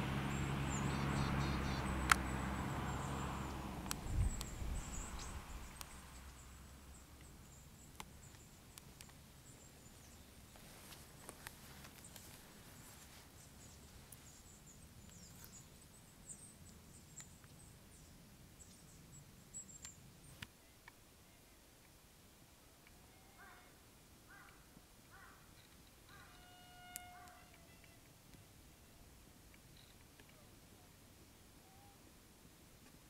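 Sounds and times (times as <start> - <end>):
faint high bird chirps: 0.4 - 8.6, 25.2 - 29.1, 31.6 - 32.1.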